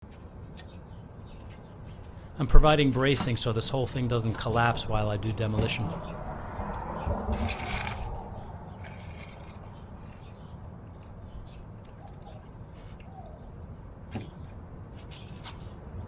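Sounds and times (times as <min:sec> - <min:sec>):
outdoor background noise: 0:00.0 - 0:16.0
faint bird calls: 0:04.9 - 0:13.6.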